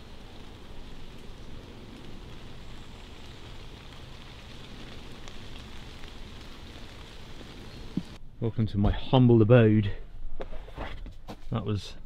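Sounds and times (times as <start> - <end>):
steady rain in woodland: 0.0 - 8.5.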